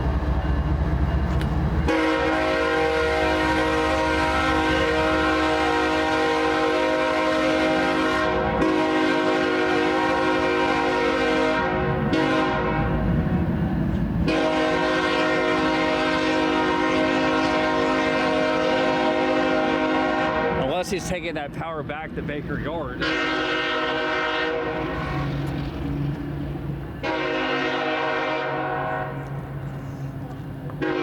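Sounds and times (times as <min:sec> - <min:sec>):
locomotive air horn chord: 0:01.9 - 0:13.0, 0:14.2 - 0:20.7, 0:23.0 - 0:25.4, 0:27.0 - 0:29.4, 0:30.8 - 0:31.0.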